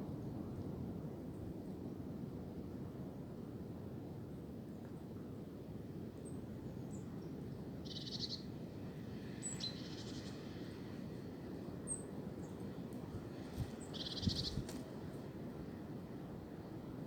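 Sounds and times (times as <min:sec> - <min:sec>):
wind blowing through trees: 0:06.0 - 0:17.0
songbirds chirping: 0:06.7 - 0:15.3.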